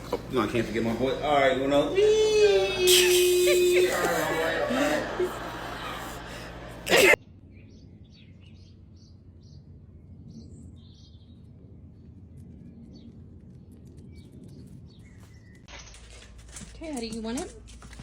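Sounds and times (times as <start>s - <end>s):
faint outdoor ambience: 0.0s - 18.0s.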